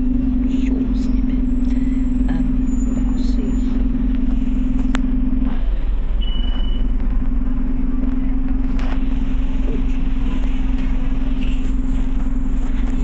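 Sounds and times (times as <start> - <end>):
bus engine drone: 0.0 - 13.0
road rumble: 0.0 - 13.0
short high beep: 6.2 - 6.9.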